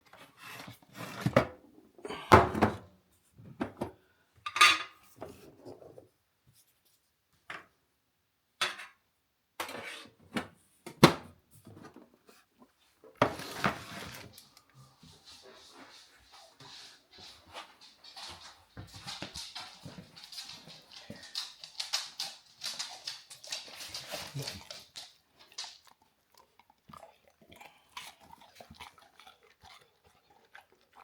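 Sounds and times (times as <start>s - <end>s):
dishes and cutlery clinking: 4.5s - 5.0s.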